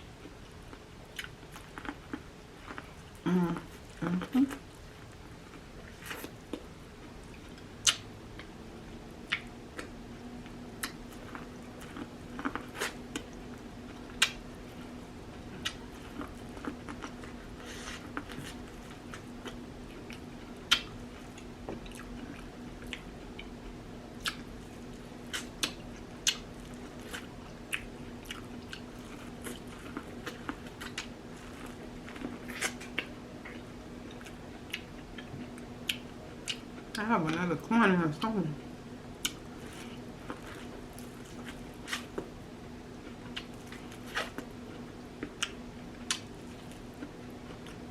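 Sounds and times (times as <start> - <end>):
steady low hum: 0.0 - 47.9
wet smacks and sharp clicks: 7.8 - 8.5.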